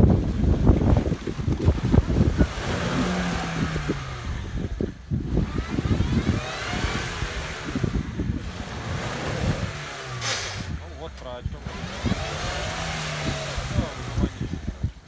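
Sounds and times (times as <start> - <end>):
engine running and revving: 0.0 - 15.0
low thumps: 0.0 - 15.0.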